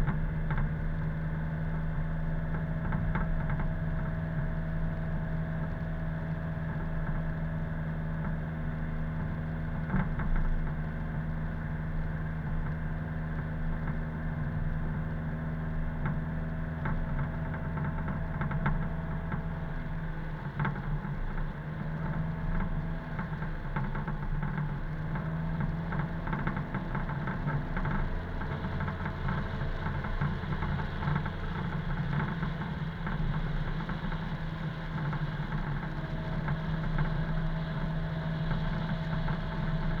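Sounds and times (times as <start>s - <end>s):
car engine running: 18.5s - 40.0s.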